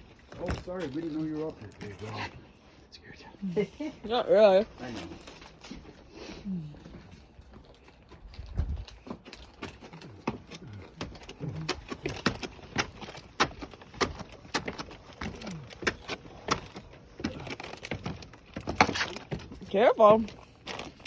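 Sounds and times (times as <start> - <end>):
footsteps walking: 4.4 - 21.0.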